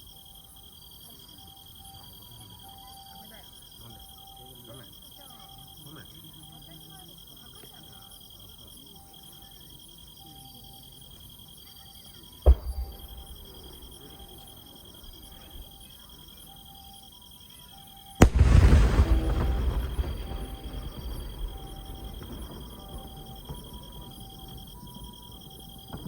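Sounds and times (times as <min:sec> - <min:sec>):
insects chirping: 0:00.0 - 0:26.0
fireworks booming: 0:12.4 - 0:15.9, 0:18.2 - 0:26.0
fireworks crackling: 0:12.5 - 0:16.0, 0:18.2 - 0:26.0.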